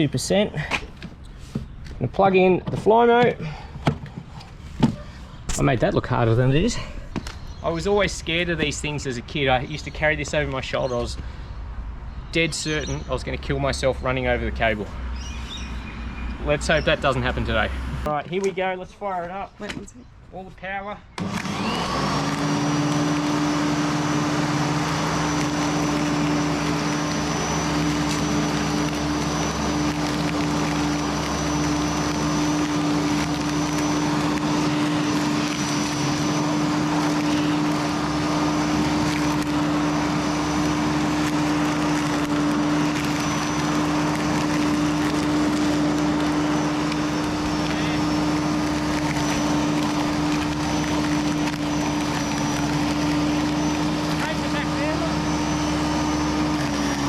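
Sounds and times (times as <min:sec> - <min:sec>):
electric lawn mower running: 0:06.6 - 0:10.6, 0:14.1 - 0:18.7, 0:21.1 - 0:57.0.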